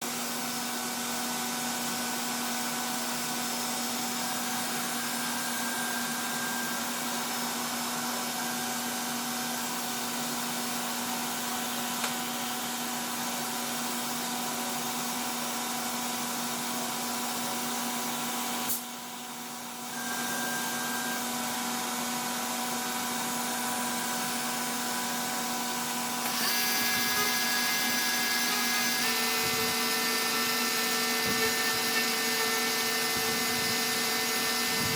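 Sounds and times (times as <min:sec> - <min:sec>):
cnc router spindle whine: 0:00.0 - 0:34.9.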